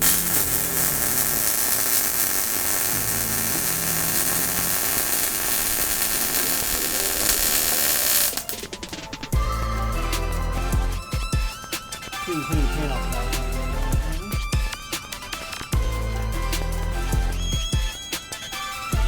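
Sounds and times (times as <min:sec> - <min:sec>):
welding arc hissing and crackling: 0:00.0 - 0:09.1.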